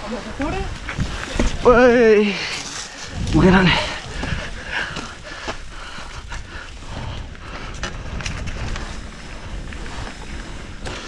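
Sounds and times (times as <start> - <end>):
wind buffeting microphone: 0.0 - 2.4, 3.0 - 11.0
bike clicks and rattles: 0.3 - 11.0.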